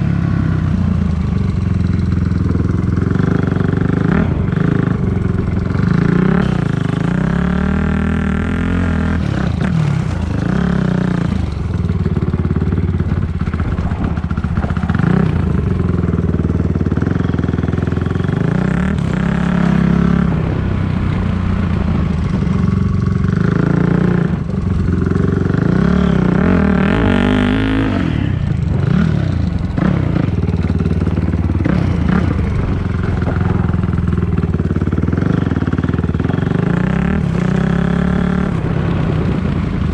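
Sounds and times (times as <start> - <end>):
dirt bike engine revving: 1.5 - 39.6.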